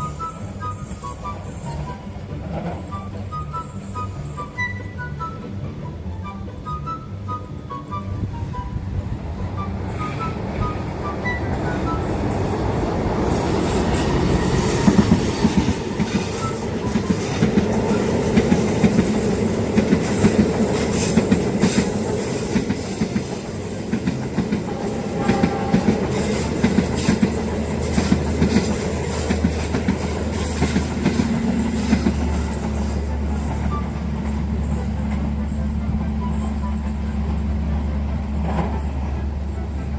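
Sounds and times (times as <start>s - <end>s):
wheel squeal: 0.0s - 39.9s
train wheels clattering over joints: 9.1s - 39.9s.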